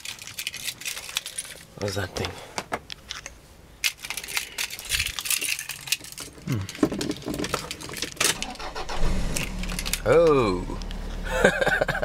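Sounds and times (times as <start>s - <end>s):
car keys jangling: 0.0s - 1.7s, 3.1s - 10.4s.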